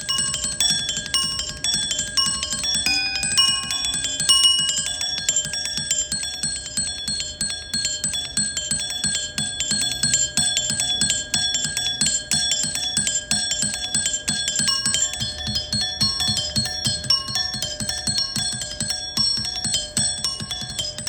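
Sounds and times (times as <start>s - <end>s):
rapid bell-like metallic strikes: 0.1s - 6.2s.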